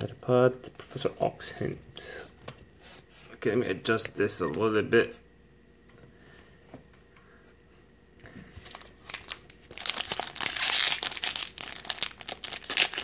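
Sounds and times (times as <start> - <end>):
foil wrapper crinkling: 8.6 - 13.0.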